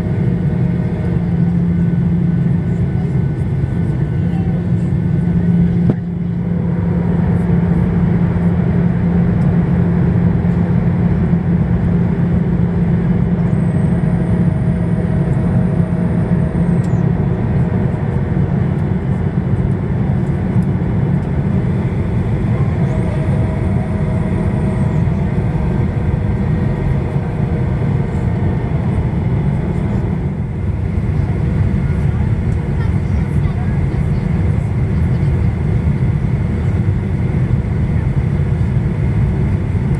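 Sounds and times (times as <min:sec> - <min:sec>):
jet engine cabin roar: 0:00.0 - 0:39.9
low hum: 0:11.2 - 0:36.7
faint thin whine: 0:21.6 - 0:30.3.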